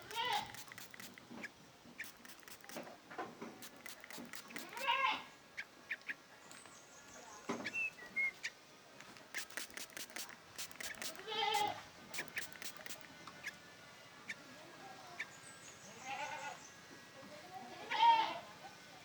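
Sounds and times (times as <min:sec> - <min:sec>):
sharp clicks: 0:00.0 - 0:01.4, 0:02.0 - 0:02.9, 0:03.6 - 0:05.0, 0:09.1 - 0:11.2, 0:12.1 - 0:13.1
bird chicks calling: 0:00.0 - 0:02.7.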